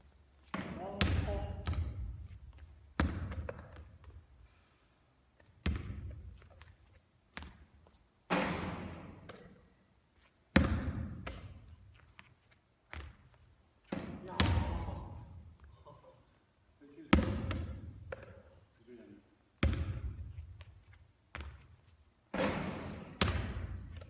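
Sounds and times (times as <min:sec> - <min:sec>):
basketball bouncing on court: 0:00.4 - 0:04.2, 0:05.5 - 0:07.7, 0:08.3 - 0:09.6, 0:10.5 - 0:11.7, 0:12.9 - 0:15.3, 0:17.1 - 0:18.5, 0:19.6 - 0:24.0.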